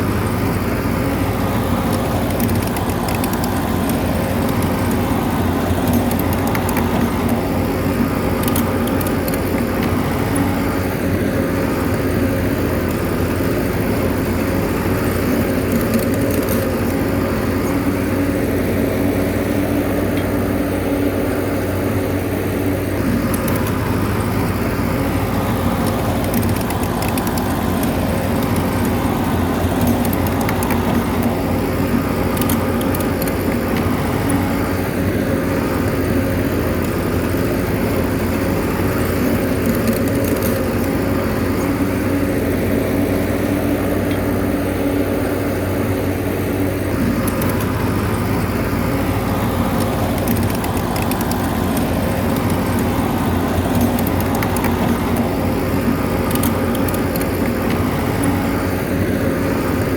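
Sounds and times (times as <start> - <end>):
bulldozer diesel engine running: 0.0 - 59.9
faint clicks: 25.4 - 34.5, 39.0 - 41.0, 47.0 - 58.4.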